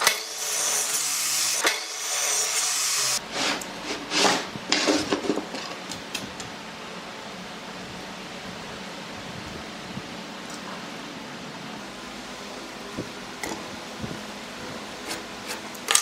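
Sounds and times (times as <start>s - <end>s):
hand tool hissing on wood: 0.0s - 3.6s.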